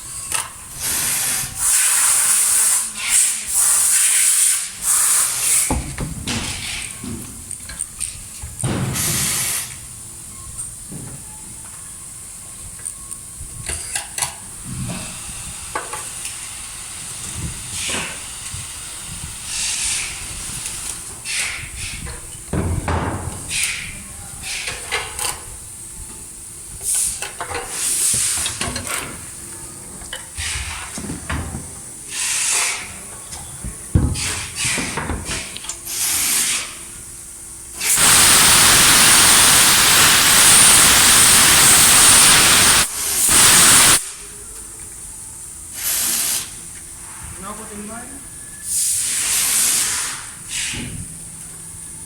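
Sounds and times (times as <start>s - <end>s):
air hissing: 0.7s - 7.0s, 8.7s - 9.9s, 14.6s - 28.6s, 32.0s - 33.0s, 34.2s - 44.4s, 45.7s - 47.3s, 48.5s - 51.4s.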